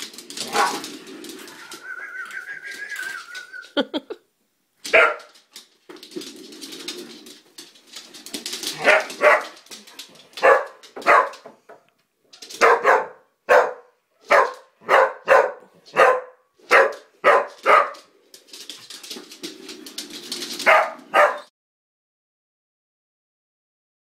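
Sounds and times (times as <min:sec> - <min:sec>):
dogs barking: 0:04.9 - 0:05.3, 0:08.8 - 0:09.6, 0:10.4 - 0:11.4, 0:12.6 - 0:18.1, 0:20.6 - 0:21.5.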